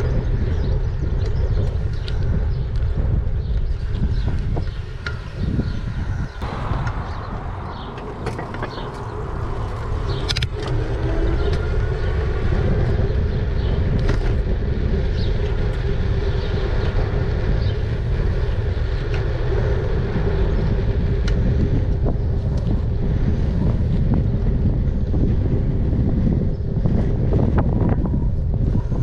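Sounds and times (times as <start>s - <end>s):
tyre noise: 0.0s - 19.8s
wind buffeting microphone: 0.0s - 29.0s.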